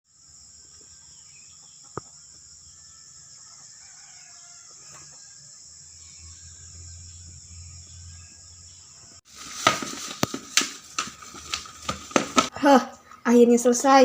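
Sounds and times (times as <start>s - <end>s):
insects chirring: 0.1s - 14.0s
faint chicken calls: 1.5s - 5.6s.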